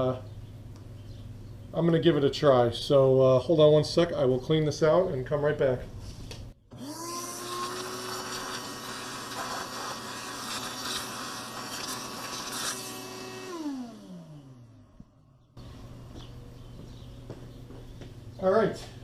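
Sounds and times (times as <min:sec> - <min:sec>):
motor winding down: 0:06.7 - 0:15.2
shop vacuum running: 0:06.7 - 0:18.4.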